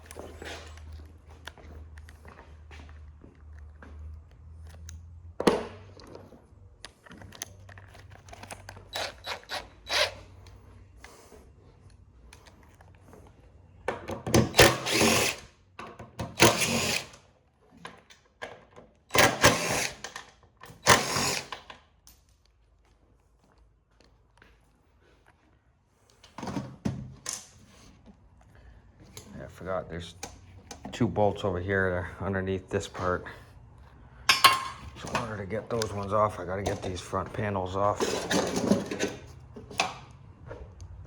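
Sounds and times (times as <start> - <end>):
cordless drill running: 8.8 - 10.3, 14.4 - 15.5, 16.4 - 17.2, 19.2 - 20.0, 20.8 - 21.6.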